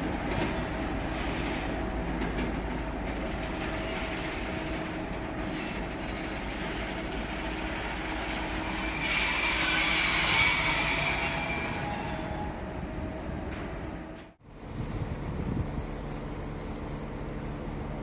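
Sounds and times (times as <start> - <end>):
train wagons rolling: 0.0 - 14.3
high wheel squeal: 6.8 - 12.9.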